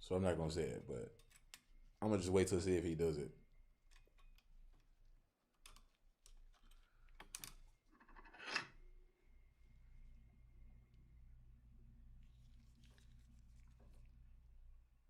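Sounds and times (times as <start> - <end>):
small metal parts clicking: 1.2 - 1.7
metal scrape: 8.0 - 8.8.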